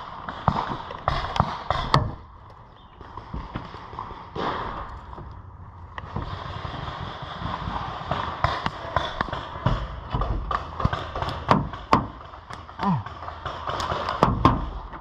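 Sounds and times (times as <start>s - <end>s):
paintball markers firing: 0.1s - 4.9s, 7.6s - 15.0s
wind rumble on microphone: 4.7s - 10.6s.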